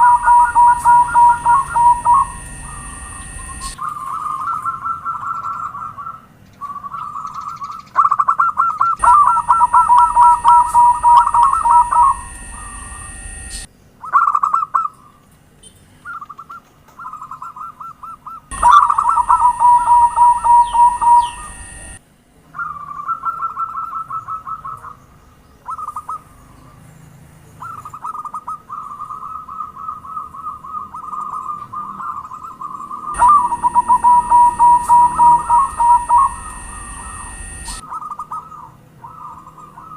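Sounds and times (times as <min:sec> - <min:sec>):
doves cooing: 0:00.0 - 0:06.2, 0:09.0 - 0:13.7, 0:18.5 - 0:22.0, 0:28.4 - 0:39.9.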